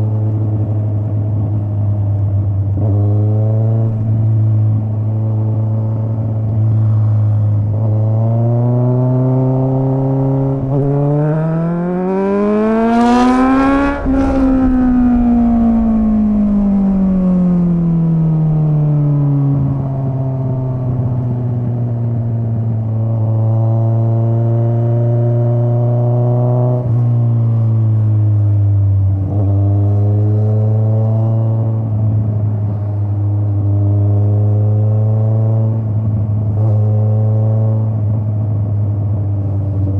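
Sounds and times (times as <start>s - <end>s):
motorcycle engine revving: 7.7s - 26.9s.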